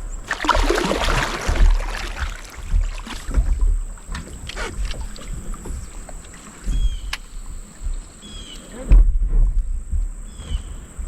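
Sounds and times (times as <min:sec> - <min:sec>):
kayak paddle splashing water: 0:00.0 - 0:09.0.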